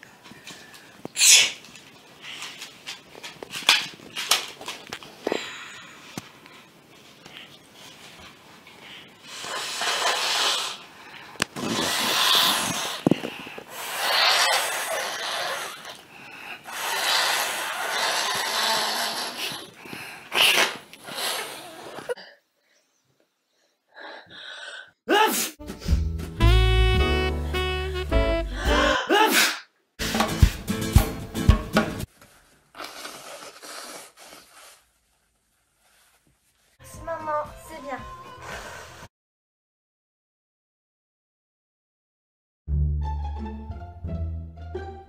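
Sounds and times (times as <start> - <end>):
girl sneezing: 1.2 - 1.6, 25.1 - 25.6, 28.6 - 29.7
short sharp sniffs: 1.2 - 1.6, 9.3 - 10.9, 20.3 - 21.8, 32.8 - 34.8
woman blowing her nose: 1.2 - 1.6, 9.3 - 10.9, 11.5 - 16.0, 16.6 - 19.7, 20.3 - 22.2, 26.7 - 30.2, 32.8 - 34.8.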